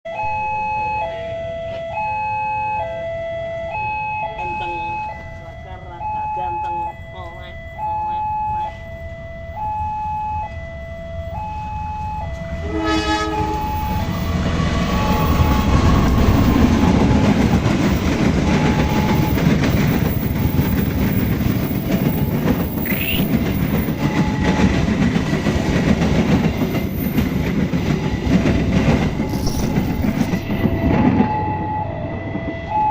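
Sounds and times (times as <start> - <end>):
level-crossing alarm beeping: 0.1 - 25.6, 26.2 - 32.9
passenger train passing: 0.1 - 32.9
locomotive horn blast: 12.3 - 17.3, 22.8 - 24.8
wheel clatter: 16.4 - 31.4.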